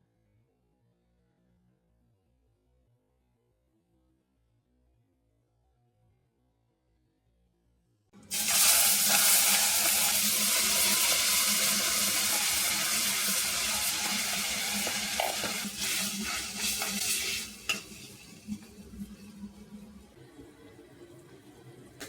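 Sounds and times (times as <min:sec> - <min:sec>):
food sizzling in hot oil: 0:08.3 - 0:19.4
utensil knocking on pan: 0:11.8 - 0:18.1.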